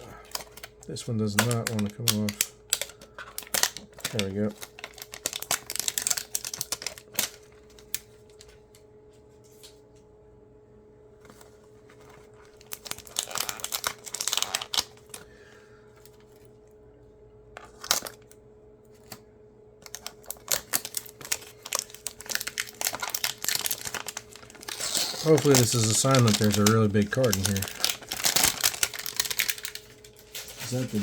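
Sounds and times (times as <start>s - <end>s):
plastic wrapping crinkling and tearing: 0.0s - 8.5s, 11.3s - 15.3s, 17.7s - 18.2s, 19.8s - 31.0s
faint steady hum: 0.0s - 31.0s.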